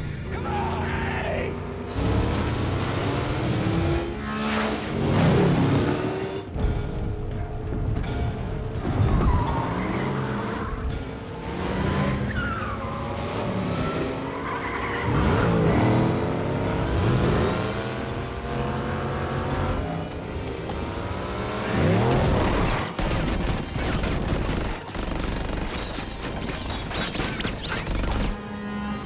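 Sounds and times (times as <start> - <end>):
car engines revving hard: 0.0 - 6.6, 8.7 - 24.7.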